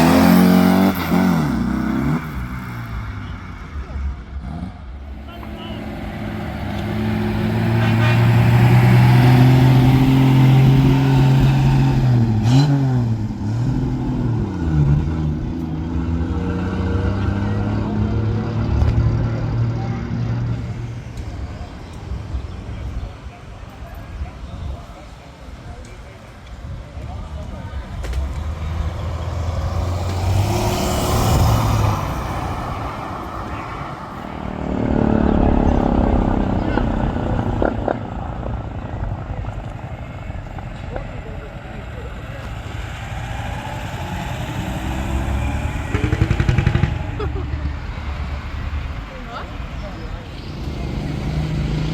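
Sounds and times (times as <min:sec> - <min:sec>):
second vehicle engine: 0:00.0 - 0:51.9
vehicle engine running: 0:26.6 - 0:51.9.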